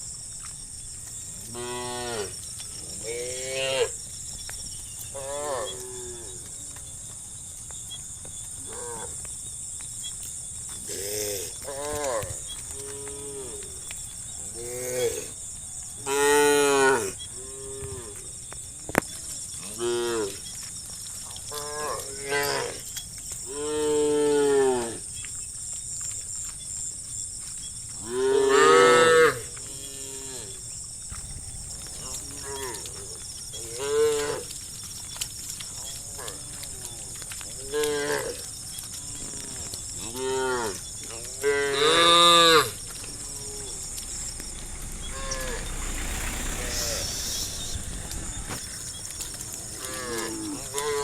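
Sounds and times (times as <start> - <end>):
cattle mooing: 40.0 - 51.0.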